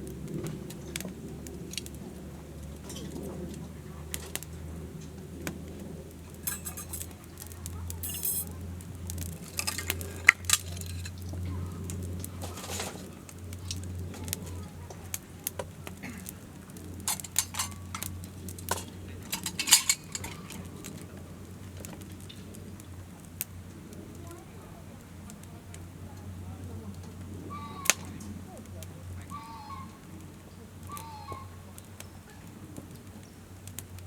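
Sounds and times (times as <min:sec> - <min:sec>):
hard objects clinking and clattering: 0:06.4 - 0:07.2, 0:08.0 - 0:08.5, 0:09.2 - 0:11.2, 0:16.9 - 0:21.1.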